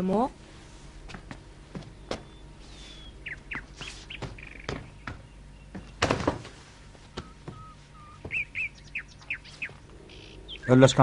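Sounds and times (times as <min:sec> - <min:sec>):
songbirds chirping: 0:00.0 - 0:11.0
knocks: 0:01.1 - 0:02.4, 0:03.8 - 0:06.6.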